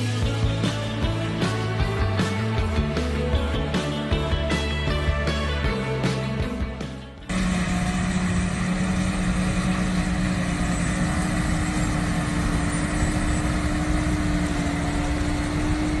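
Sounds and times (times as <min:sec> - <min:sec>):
heavy machinery engine humming: 0:07.3 - 0:16.0
steady whine: 0:07.3 - 0:16.0.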